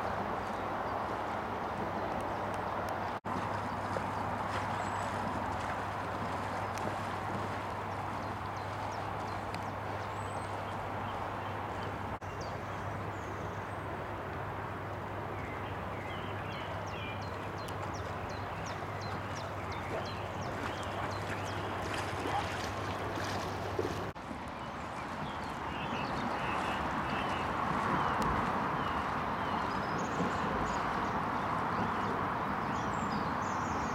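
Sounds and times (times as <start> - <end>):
rushing outdoor noise: 0.0 - 33.9
birds chirping: 15.4 - 33.9.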